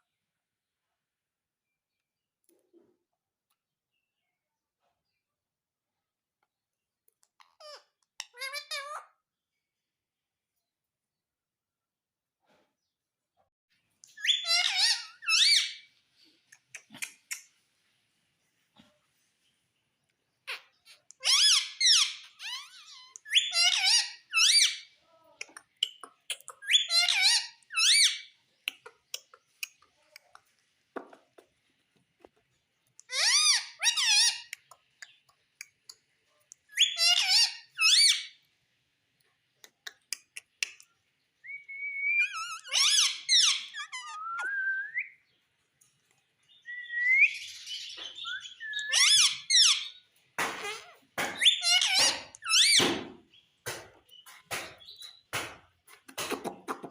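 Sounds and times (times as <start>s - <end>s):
parrot squawking: 7.5s - 9.2s, 14.2s - 15.9s, 20.5s - 24.9s, 25.9s - 28.3s, 33.0s - 34.6s, 36.7s - 38.4s, 41.5s - 45.2s, 47.1s - 52.9s
parrot whistling pitch glides: 41.5s - 43.0s, 43.8s - 45.2s.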